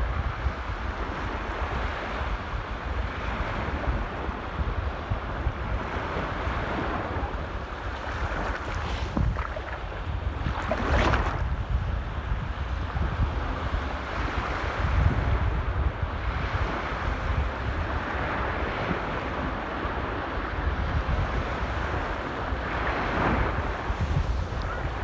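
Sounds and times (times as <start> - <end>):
wind rumbling on microphone: 0.0 - 25.0
sea waves washing in: 5.9 - 11.6, 21.4 - 25.0.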